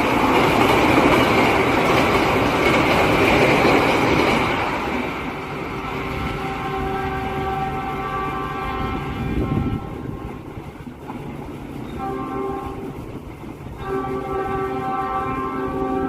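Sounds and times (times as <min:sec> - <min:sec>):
train rumble: 0:00.0 - 0:16.0
train horn blasts: 0:06.0 - 0:10.6, 0:11.9 - 0:13.1, 0:13.7 - 0:16.0.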